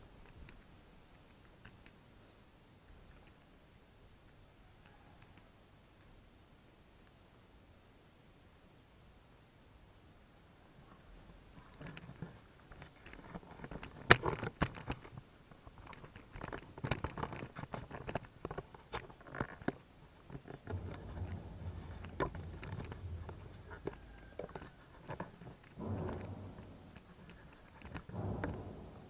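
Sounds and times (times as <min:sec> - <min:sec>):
low hum: 0:20.6 - 0:29.0.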